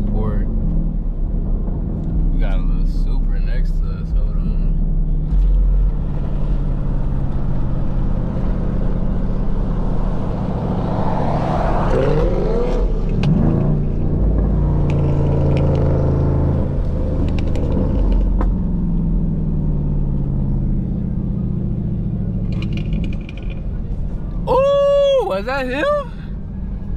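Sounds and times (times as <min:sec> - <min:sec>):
car engines rumbling: 0:00.0 - 0:26.9
engine revving: 0:05.2 - 0:23.7.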